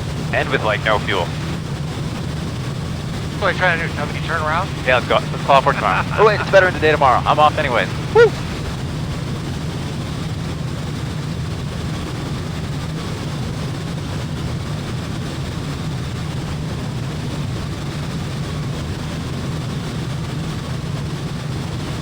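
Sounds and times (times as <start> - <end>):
small airplane engine drone: 0.4 - 1.6, 3.1 - 8.6.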